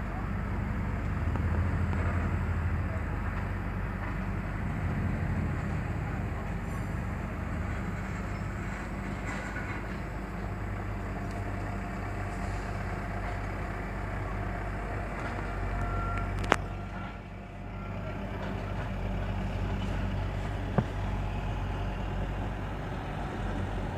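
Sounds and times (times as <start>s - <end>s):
truck diesel engine running: 0.0s - 23.9s
faint beeps: 15.4s - 18.1s.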